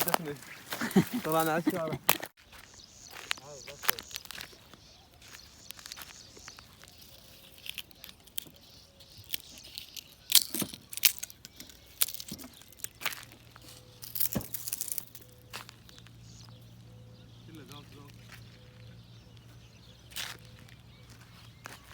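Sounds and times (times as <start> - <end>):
twigs snapping: 0.0 - 16.1
footsteps in dry undergrowth: 0.0 - 21.9.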